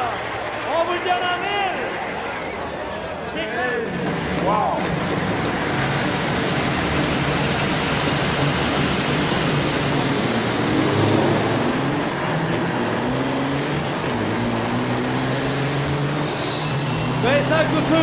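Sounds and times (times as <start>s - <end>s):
truck engines accelerating: 0.0s - 18.0s.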